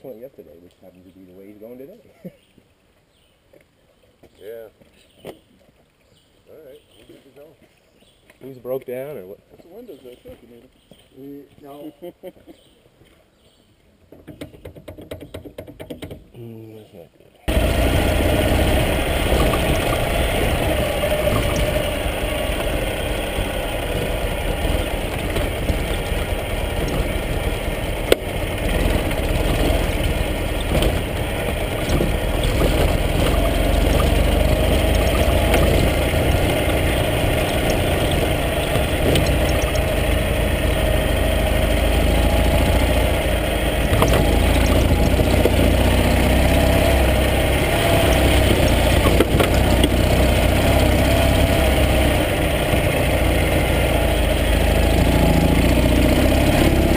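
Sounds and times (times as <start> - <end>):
motorcycle engine running: 17.5 - 56.9.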